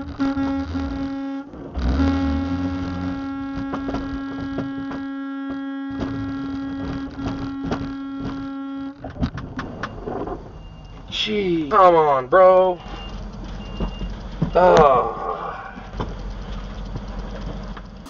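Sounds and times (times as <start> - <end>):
steady electrical hum: 0.0 - 9.8.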